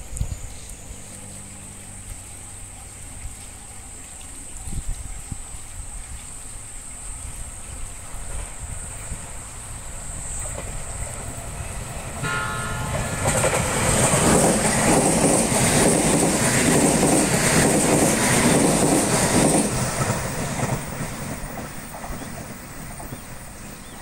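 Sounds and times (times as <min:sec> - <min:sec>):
train wheels clattering on rails: 0:10.3 - 0:24.0
train horn blast: 0:12.2 - 0:14.7.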